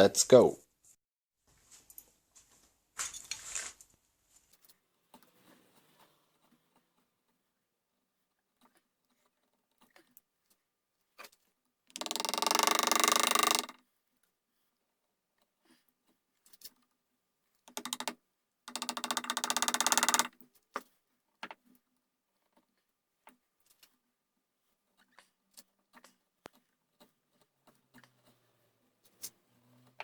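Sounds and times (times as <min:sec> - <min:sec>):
small knocks and taps: 0:17.7 - 0:21.7.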